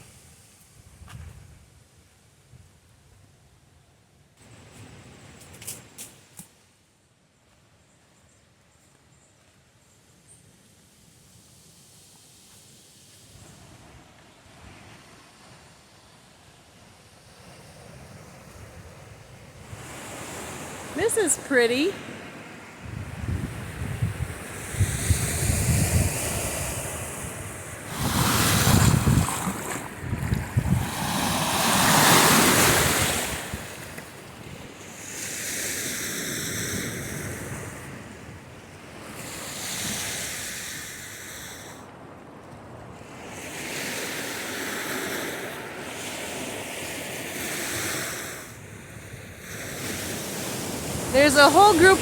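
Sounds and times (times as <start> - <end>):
waves washing onto beach: 10.8 - 52.0
wind buffeting microphone: 22.8 - 34.7.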